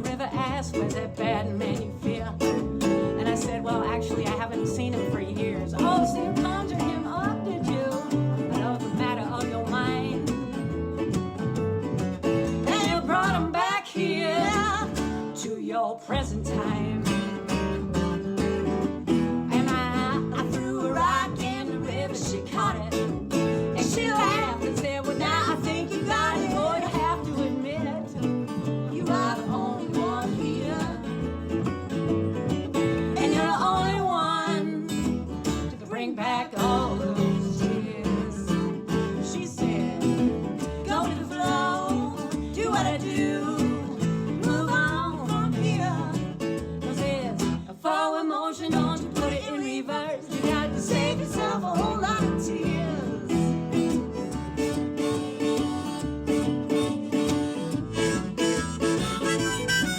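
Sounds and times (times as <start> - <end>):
strummed acoustic guitar: 0.0 - 59.9
wavering harmonica lead: 53.8 - 59.9.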